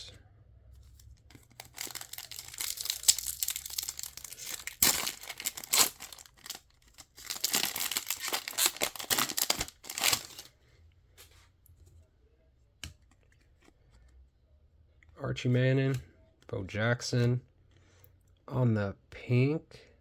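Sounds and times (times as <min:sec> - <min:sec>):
card pack wrapper tearing: 0:01.0 - 0:10.5.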